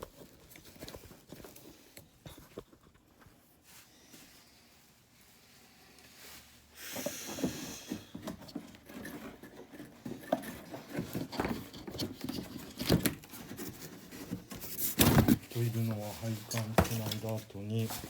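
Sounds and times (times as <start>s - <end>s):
handling rustling: 0.0s - 3.8s, 8.1s - 18.0s.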